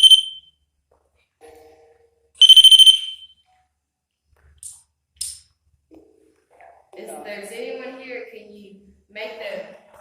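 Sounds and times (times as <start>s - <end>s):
rapid high-pitched electronic beeps: 0.0s - 0.4s.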